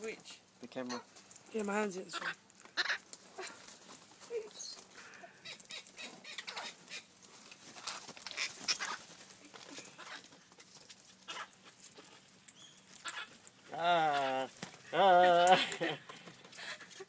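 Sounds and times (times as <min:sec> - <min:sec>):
parrots making scratchy calls: 0:00.8 - 0:01.2, 0:02.0 - 0:15.0.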